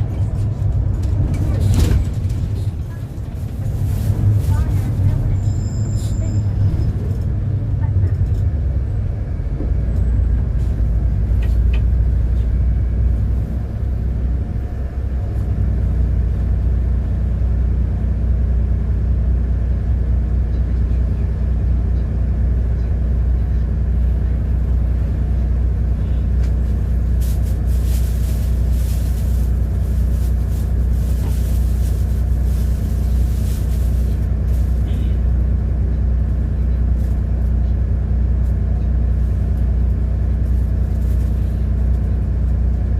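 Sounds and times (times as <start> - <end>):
bus engine droning: 0.0 - 42.9.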